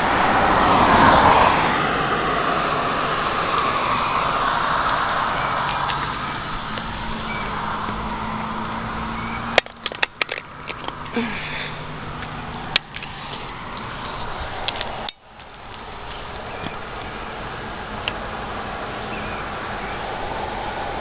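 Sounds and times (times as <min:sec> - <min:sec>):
engine hum: 0:00.0 - 0:21.0
passing traffic road noise: 0:00.0 - 0:21.0
sharp clicks and knocks: 0:09.5 - 0:11.2.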